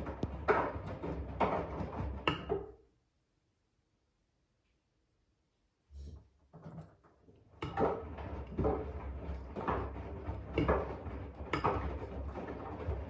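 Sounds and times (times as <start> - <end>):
washing machine motor hum: 0.0 - 2.3, 7.5 - 13.0.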